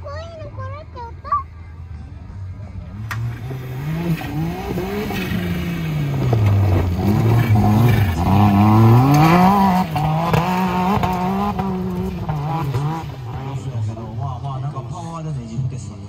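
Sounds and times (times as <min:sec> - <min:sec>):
engine revving hard: 0:02.9 - 0:14.4.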